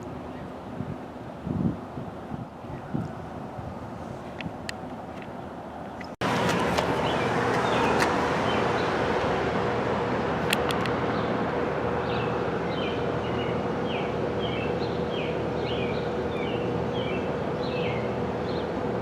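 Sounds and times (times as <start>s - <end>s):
bird chirping: 5.7s - 8.9s
machinery humming: 6.2s - 19.0s.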